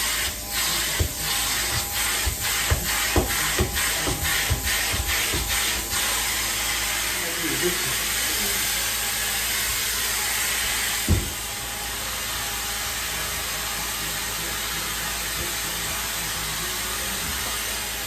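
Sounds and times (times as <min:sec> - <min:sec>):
extraction cleaner vacuum hiss: 0:00.0 - 0:18.0
short thump: 0:11.1 - 0:11.4.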